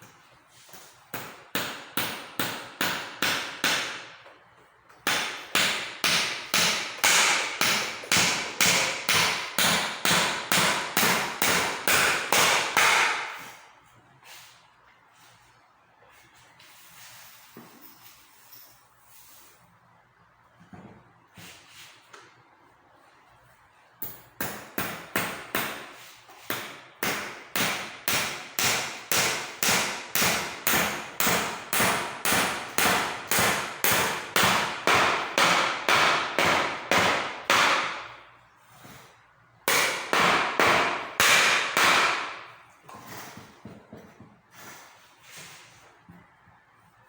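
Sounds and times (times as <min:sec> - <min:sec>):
hammer striking a chair: 0:01.2 - 0:04.1, 0:05.0 - 0:13.5, 0:24.4 - 0:38.0, 0:39.7 - 0:42.5.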